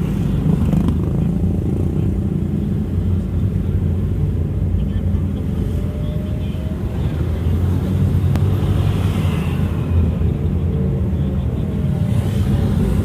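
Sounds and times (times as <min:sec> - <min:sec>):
road noise: 0:00.0 - 0:13.0
vehicle engine: 0:00.0 - 0:13.0.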